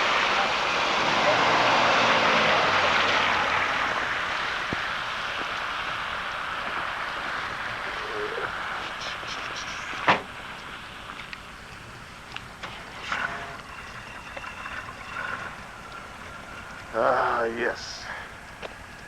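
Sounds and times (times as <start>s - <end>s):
vehicle passing: 0.0s - 8.8s.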